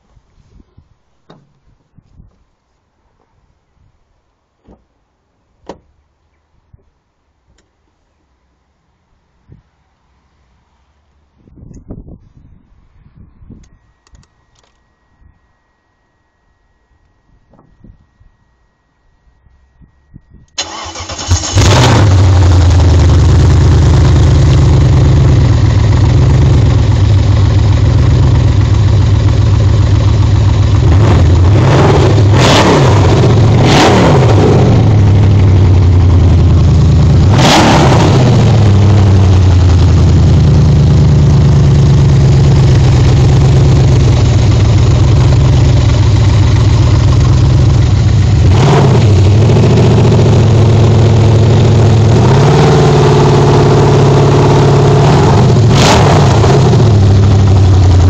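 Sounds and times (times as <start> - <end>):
engine revving: 20.6 - 58.0
car engine idling roughly: 22.2 - 31.6, 38.6 - 48.6.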